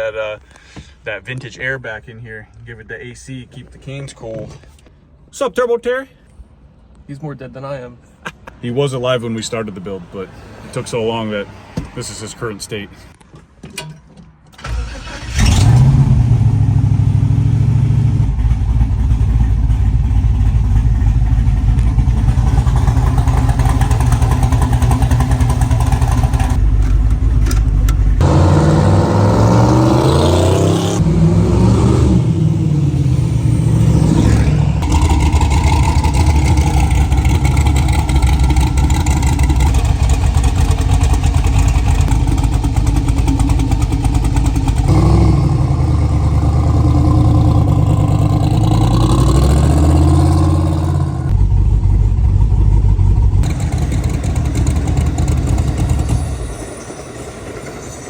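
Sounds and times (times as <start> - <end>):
car engine revving: 14.7 - 56.2.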